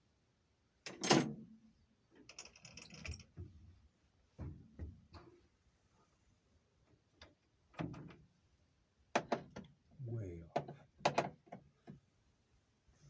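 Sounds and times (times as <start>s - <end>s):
metal tools rattling: 2.3s - 3.2s.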